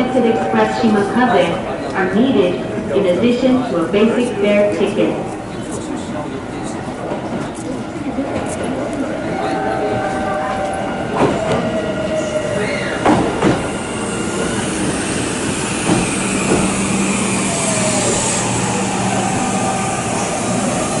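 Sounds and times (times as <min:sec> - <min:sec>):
train running rumble: 0:13.0 - 0:21.0.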